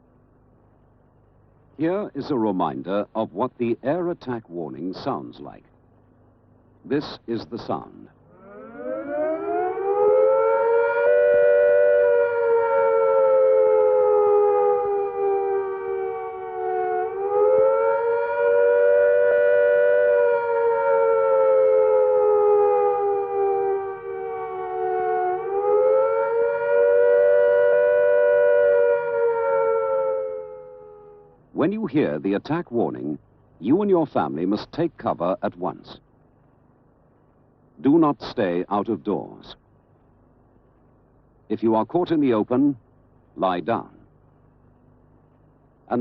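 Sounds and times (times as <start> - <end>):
air raid siren: 8.3 - 31.5.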